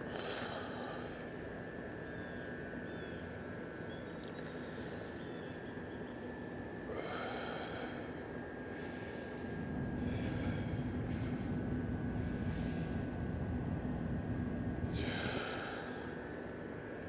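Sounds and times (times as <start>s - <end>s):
thin steady whine: 0.0s - 17.0s
steady rushing noise: 6.3s - 17.0s.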